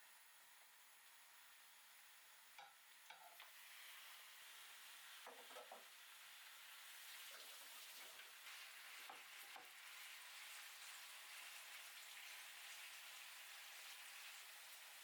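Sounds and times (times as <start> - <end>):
food sizzling in a frying pan: 0.0 - 15.0
utensil knocking in pan: 5.2 - 5.9.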